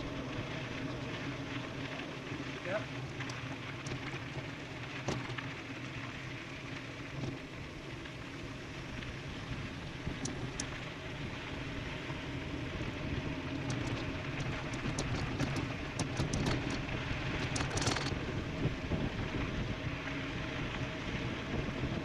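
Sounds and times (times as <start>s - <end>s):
bike tyre noise: 0.0s - 22.0s
sharp clicks: 17.4s - 18.2s.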